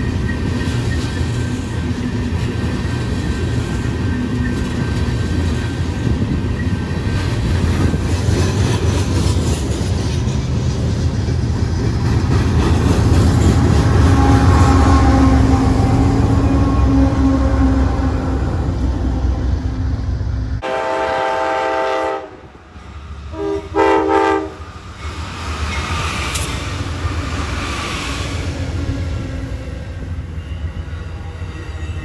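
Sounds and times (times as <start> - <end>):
diesel locomotive engine hum: 0.0 - 32.0
freight cars rumbling over rails: 0.0 - 32.0.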